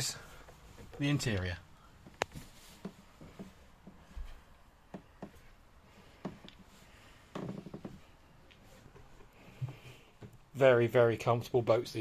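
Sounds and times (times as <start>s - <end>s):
faint knocks and clicks: 0.4s - 10.5s.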